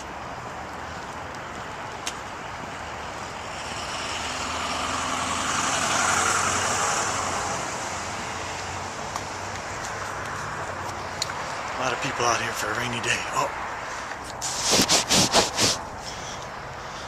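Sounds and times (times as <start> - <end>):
traffic rumble: 0.0 - 17.0
car tyres hissing on wet road: 14.4 - 15.9.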